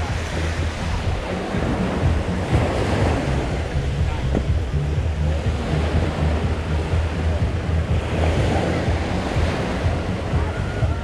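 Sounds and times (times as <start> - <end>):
sea waves washing on beach: 0.0 - 11.0
wind buffeting microphone: 0.0 - 11.0.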